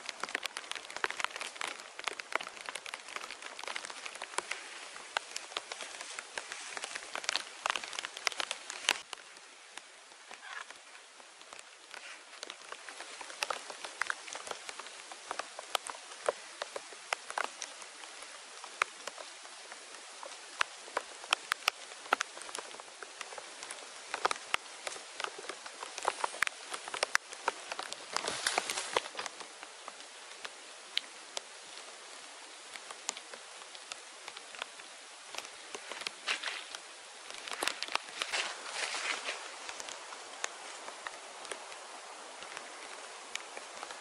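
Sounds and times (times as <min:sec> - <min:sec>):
light rain pattering on leaves: 0:00.0 - 0:44.0
rustle: 0:00.0 - 0:44.0.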